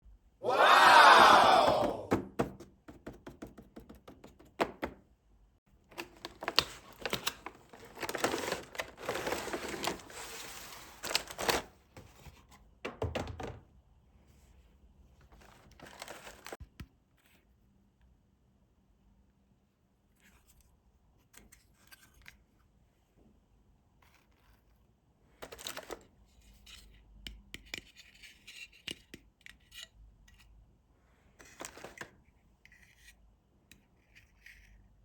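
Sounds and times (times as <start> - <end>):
rustling and scraping: 5.9 - 12.7, 15.2 - 16.6.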